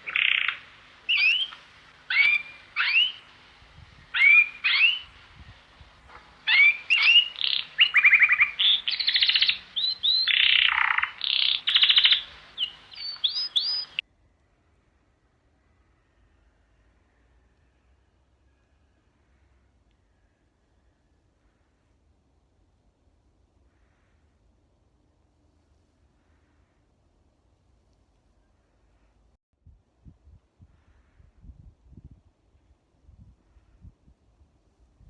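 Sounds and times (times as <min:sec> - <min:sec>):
songbird singing: 0:00.0 - 0:14.7.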